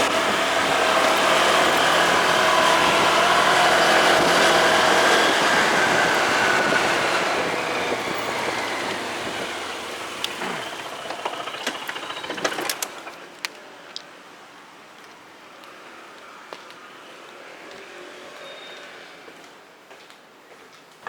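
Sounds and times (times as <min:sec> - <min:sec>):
motorcycle engine slowing: 0:00.0 - 0:13.4.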